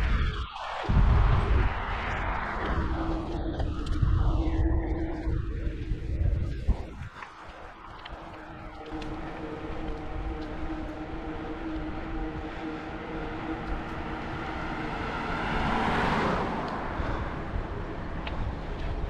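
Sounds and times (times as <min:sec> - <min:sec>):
wind noise on microphone: 0:00.0 - 0:19.0
motor vehicle passing: 0:08.0 - 0:19.0.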